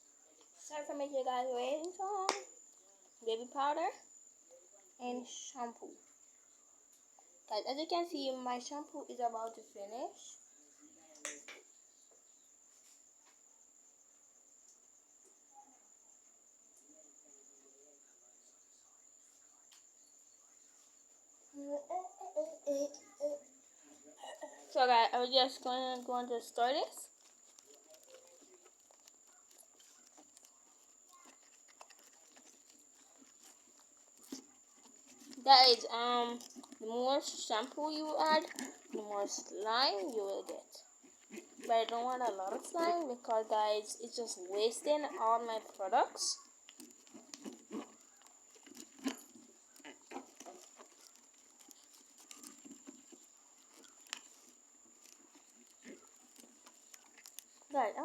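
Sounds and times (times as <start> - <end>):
spoon stirring slime: 24.7 - 58.0
faint small ticks: 25.6 - 36.9, 46.4 - 57.7.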